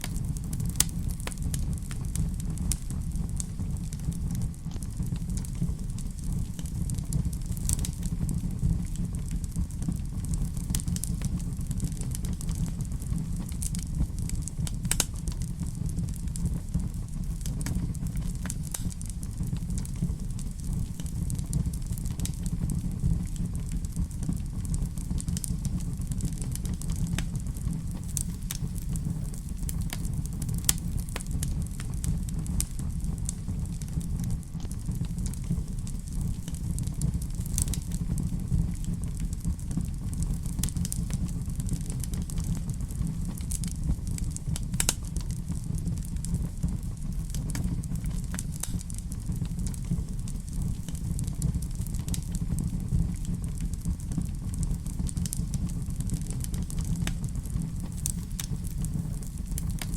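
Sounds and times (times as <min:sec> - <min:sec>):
fire crackles and sharp pops: 0:00.0 - 0:59.9
wood fire rumbling: 0:00.0 - 0:59.9.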